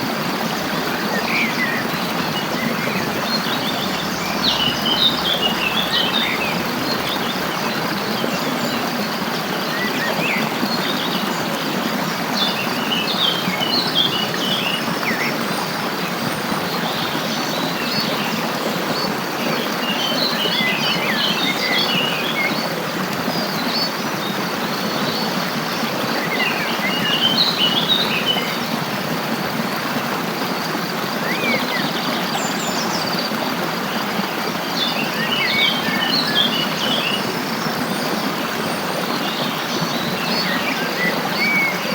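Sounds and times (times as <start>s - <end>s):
flowing water rushing: 0.0s - 41.9s
songbirds chirping: 0.3s - 28.7s.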